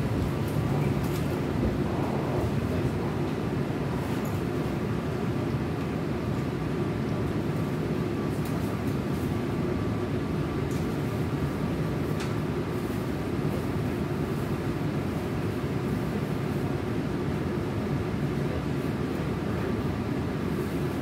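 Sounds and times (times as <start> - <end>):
train wheels rumbling on rails: 0.0 - 16.6.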